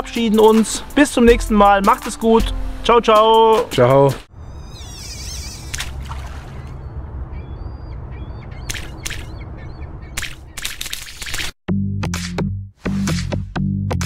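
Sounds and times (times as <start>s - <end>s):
birds chirping: 4.3s - 11.4s
harsh caw-like bird calls: 4.5s - 10.6s.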